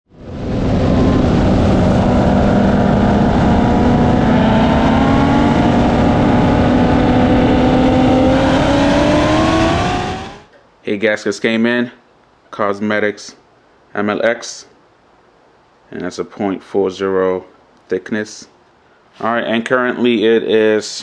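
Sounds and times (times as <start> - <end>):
car engine at full throttle: 0.1 - 10.5
wind rush: 0.1 - 10.5.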